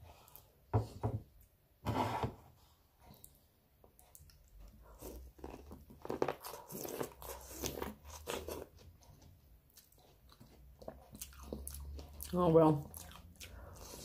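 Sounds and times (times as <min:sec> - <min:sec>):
person biting and chewing: 0:05.0 - 0:08.8.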